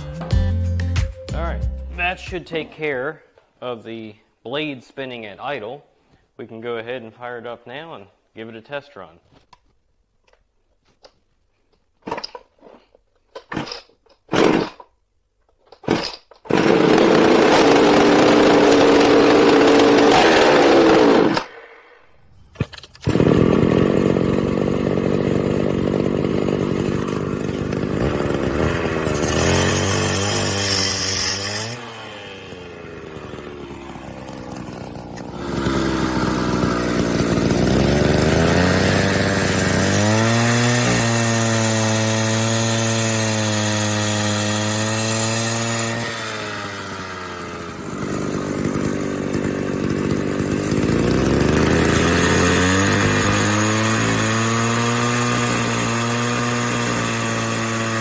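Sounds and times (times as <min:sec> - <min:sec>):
two-stroke saw engine running: 0:16.5 - 0:21.6, 0:22.7 - 0:58.0.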